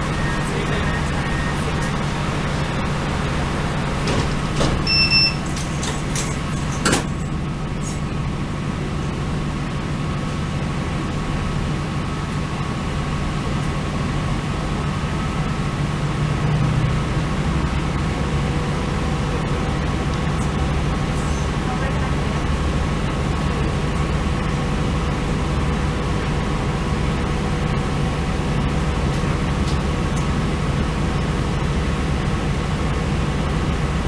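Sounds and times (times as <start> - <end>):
diesel train droning: 0.0 - 34.0
short high beep: 4.8 - 5.5.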